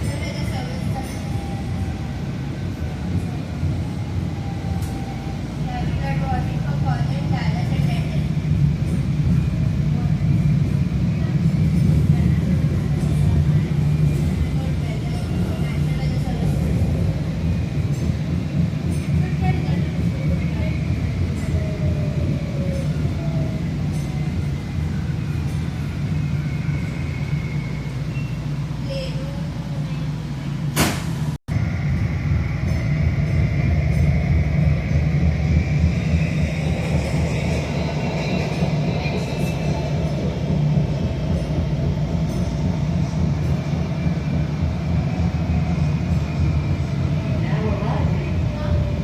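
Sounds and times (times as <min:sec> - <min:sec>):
train rumbling: 0:00.0 - 0:49.0
faint voices: 0:35.0 - 0:49.0.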